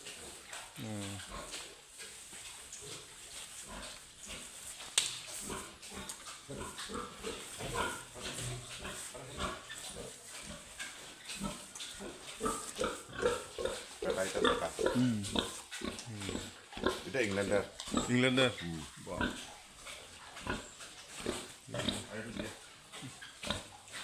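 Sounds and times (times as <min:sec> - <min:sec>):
pigs grunting: 0:00.0 - 0:24.0.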